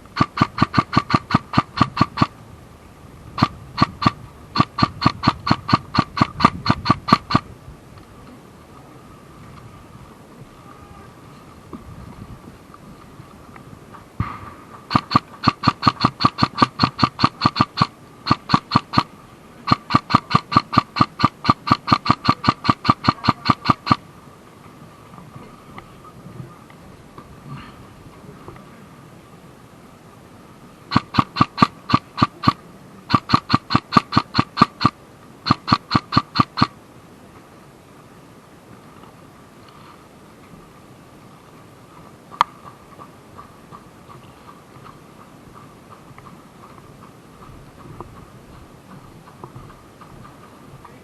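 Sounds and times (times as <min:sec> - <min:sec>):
airsoft gun rapid firing: 0:00.1 - 0:02.3, 0:03.4 - 0:07.4, 0:14.2 - 0:19.1, 0:19.7 - 0:24.0, 0:30.9 - 0:36.7.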